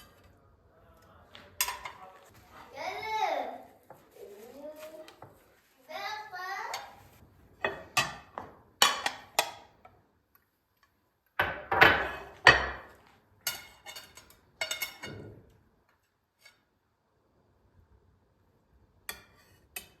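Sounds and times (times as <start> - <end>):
kitchenware knocking and clinking: 1.6 - 2.3, 6.7 - 9.8, 11.4 - 15.6.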